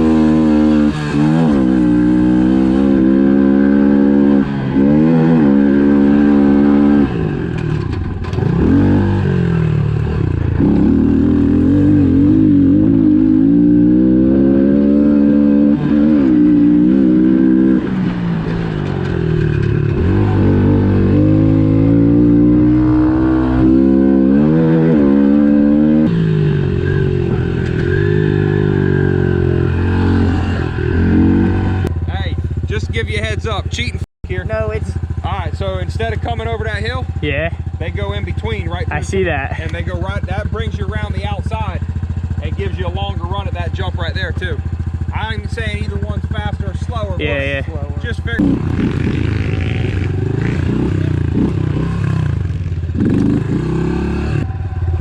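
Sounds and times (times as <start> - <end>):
small motorbike engine revving: 0.0 - 17.9, 47.1 - 55.0.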